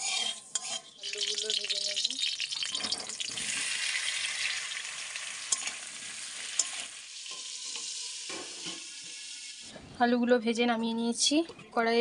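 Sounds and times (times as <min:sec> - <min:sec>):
potatoes sizzling in hot oil: 0:00.0 - 0:09.7.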